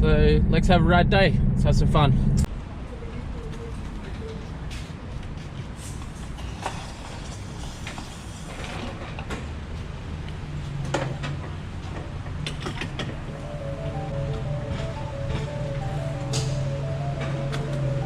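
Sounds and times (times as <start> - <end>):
low steady rumble: 0.0 - 2.5.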